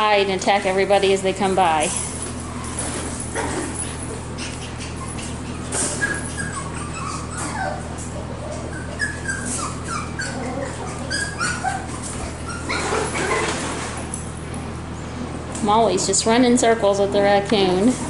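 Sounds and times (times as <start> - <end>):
puppies yipping and whimpering: 1.4 - 14.0.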